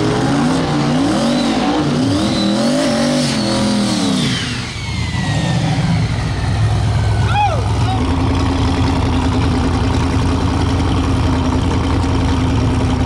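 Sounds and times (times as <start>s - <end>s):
car engine revving: 0.0s - 13.0s
turbo whistle: 1.2s - 6.4s.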